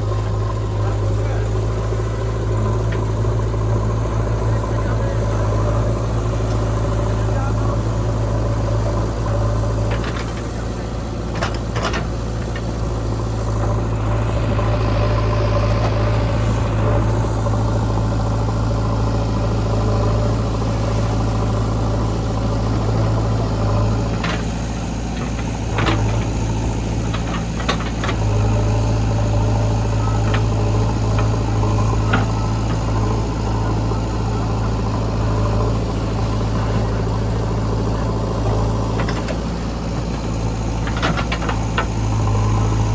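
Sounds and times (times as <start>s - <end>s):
heavy diesel engine running: 0.0s - 42.9s.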